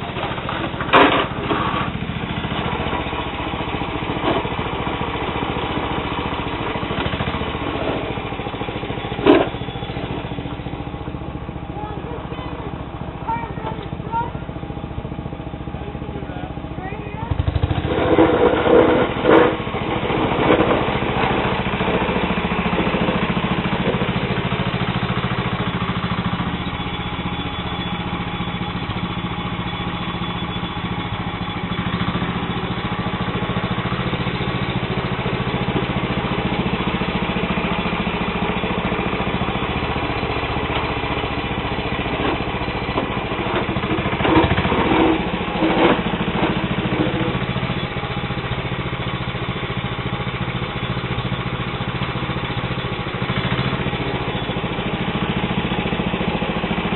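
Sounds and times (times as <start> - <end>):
garden tractor engine running: 0.0 - 56.9
blade pushing snow: 17.8 - 24.1.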